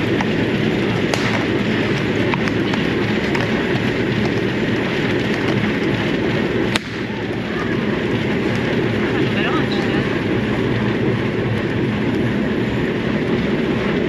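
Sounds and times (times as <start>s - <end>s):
train carriage running noise: 0.0s - 14.0s
revolver shot: 1.1s - 1.7s, 6.7s - 7.2s.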